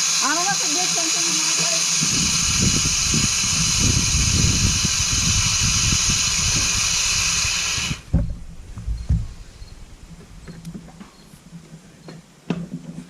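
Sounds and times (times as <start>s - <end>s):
lawnmower engine running: 0.0s - 8.1s
water spraying under mower deck: 0.0s - 8.1s
thumps: 8.1s - 11.6s.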